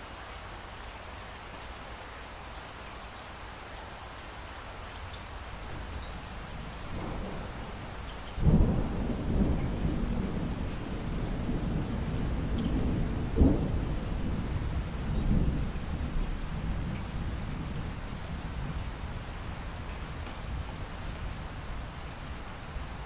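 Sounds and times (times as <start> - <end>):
steady rain falling: 0.0 - 23.0
thunder clap and rumble: 6.6 - 21.5.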